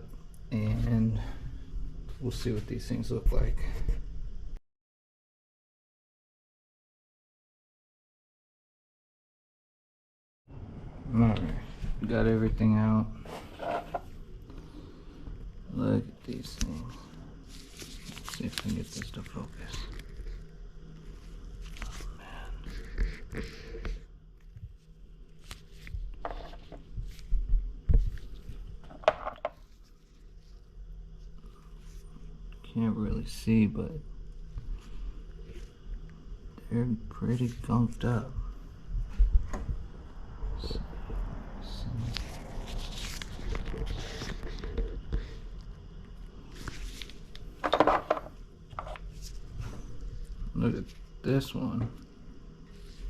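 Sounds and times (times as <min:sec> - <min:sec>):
knocks and rustles of small parts: 0:25.4 - 0:30.2, 0:46.7 - 0:49.8.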